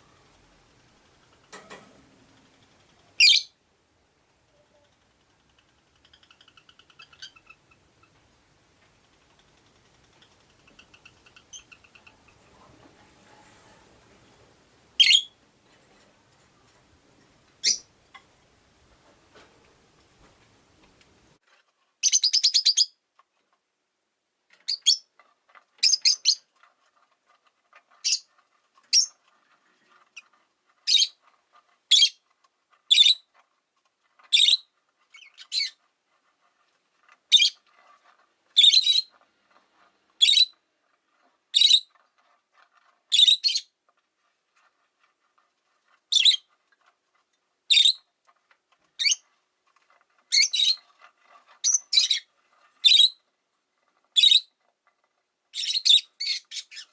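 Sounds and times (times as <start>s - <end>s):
lovebird chirping: 3.2s - 3.6s, 15.0s - 15.4s, 17.6s - 17.9s, 22.0s - 23.0s, 31.9s - 32.2s, 32.9s - 33.3s, 34.3s - 35.8s, 38.6s - 39.1s, 40.2s - 40.6s, 41.5s - 41.9s, 43.1s - 43.7s, 46.1s - 46.5s, 47.7s - 48.1s, 49.0s - 49.2s, 50.3s - 50.8s, 51.6s - 53.2s, 54.2s - 54.5s, 55.5s - 56.9s
buzzy bird trill: 15.0s - 15.4s.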